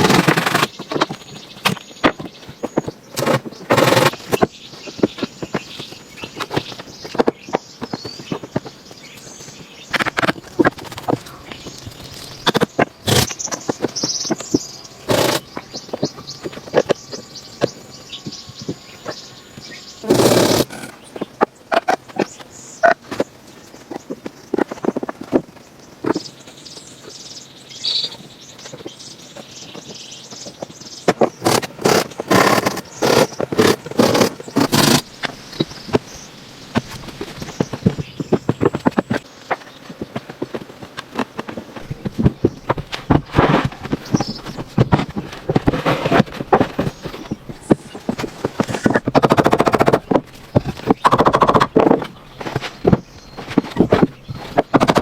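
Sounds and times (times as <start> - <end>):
loud rough scraping strokes: 0.0 - 0.7, 3.2 - 4.3, 13.0 - 13.3, 15.1 - 15.4, 20.0 - 21.0, 31.4 - 35.1
fast even rattle: 15.1 - 15.4, 20.0 - 21.0
faint bird chirps: 25.9 - 31.6.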